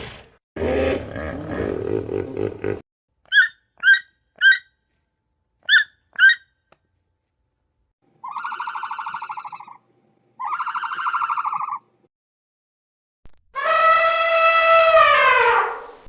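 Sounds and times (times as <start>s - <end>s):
animal roar: 0.6s - 2.7s.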